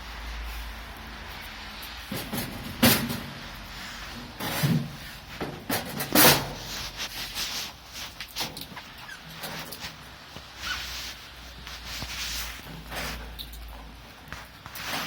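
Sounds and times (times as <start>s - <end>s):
sharp knocks and clunks: 2.1s - 3.4s.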